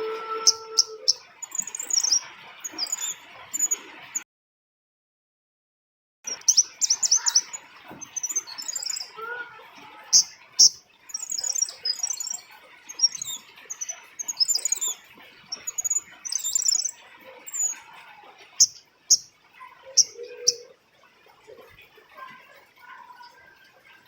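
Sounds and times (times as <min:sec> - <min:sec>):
bird chirping: 0:00.0 - 0:04.2, 0:06.3 - 0:20.8.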